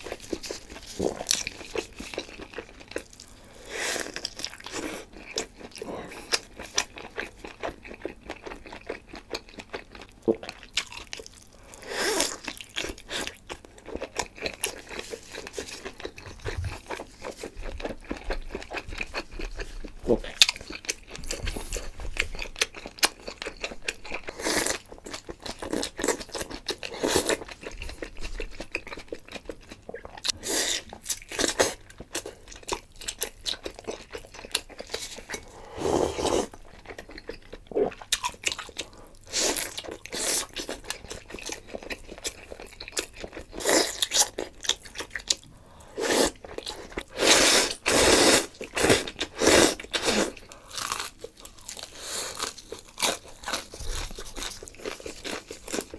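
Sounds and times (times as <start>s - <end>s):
person chewing and crunching food: 0.0s - 55.9s.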